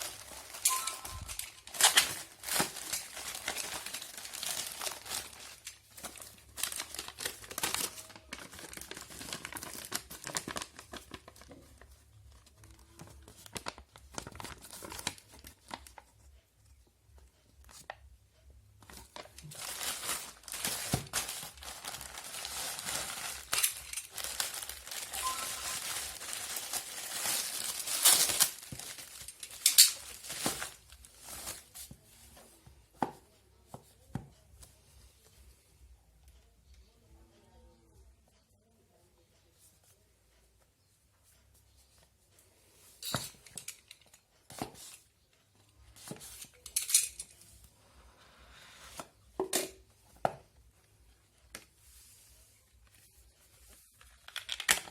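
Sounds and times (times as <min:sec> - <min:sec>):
plastic packaging crinkling: 0:00.0 - 0:11.9, 0:18.9 - 0:31.8.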